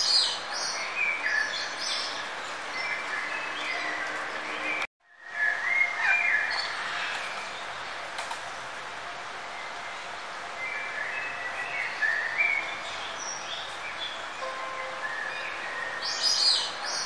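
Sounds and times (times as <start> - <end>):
birds chirping and singing: 0.0 - 8.0, 9.5 - 17.0.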